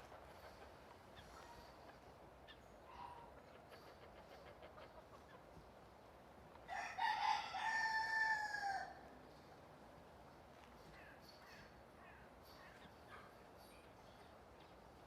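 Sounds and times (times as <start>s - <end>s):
rooster crowing: 6.7s - 9.0s.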